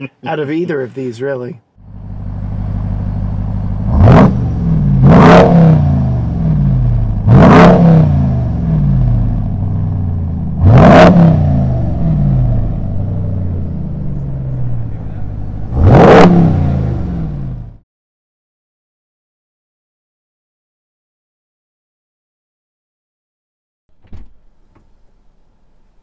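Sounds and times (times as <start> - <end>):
car engine revving: 1.8 - 17.8.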